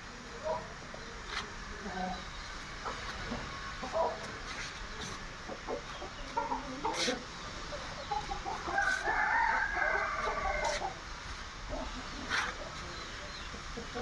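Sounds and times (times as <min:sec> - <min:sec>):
rooster clucking: 0:02.8 - 0:14.0
rooster crowing: 0:08.7 - 0:11.0.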